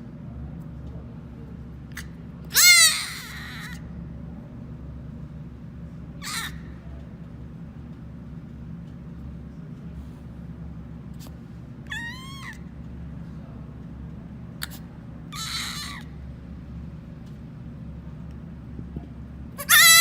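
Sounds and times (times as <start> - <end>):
steady low hum: 0.0 - 20.0
animal calls: 2.5 - 3.8, 6.2 - 6.7, 11.9 - 12.7, 14.6 - 16.2, 19.6 - 20.0.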